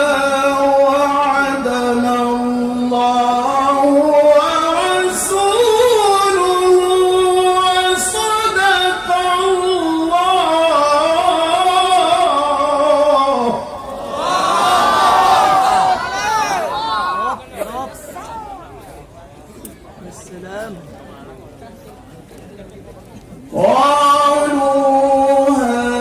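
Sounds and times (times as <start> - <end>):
man reciting melodically: 0.0 - 14.4, 23.5 - 26.0.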